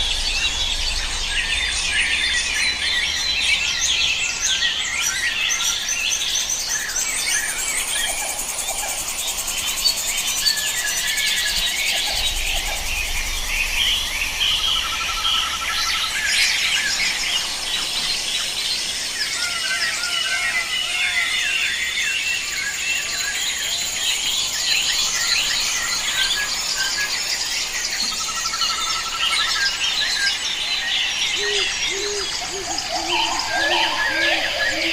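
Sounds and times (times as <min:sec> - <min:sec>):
birds chirping and whistling: 0:00.0 - 0:34.9
insect drone: 0:00.0 - 0:34.9.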